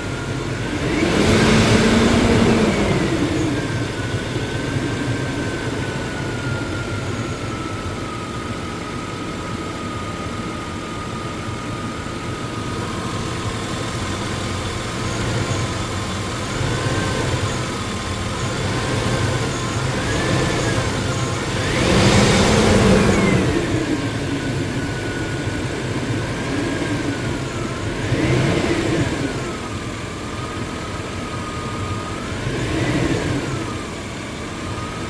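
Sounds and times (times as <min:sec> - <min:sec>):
engine rev: 0:00.0 - 0:09.1, 0:12.2 - 0:35.0
truck engine idling: 0:00.0 - 0:35.0.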